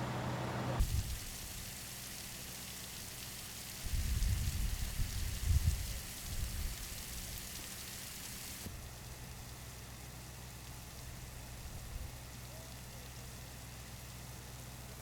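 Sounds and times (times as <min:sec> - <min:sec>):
wind on microphone: 0:03.9 - 0:06.7.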